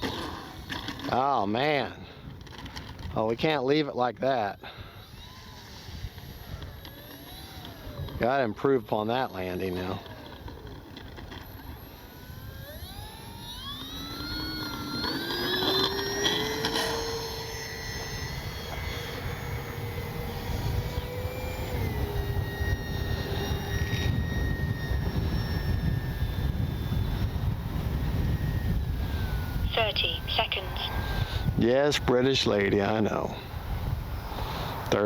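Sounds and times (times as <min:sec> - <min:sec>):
electric motor and propeller whining: 0:00.0 - 0:35.0
wind rumbling on microphone: 0:01.6 - 0:03.6, 0:15.3 - 0:35.0.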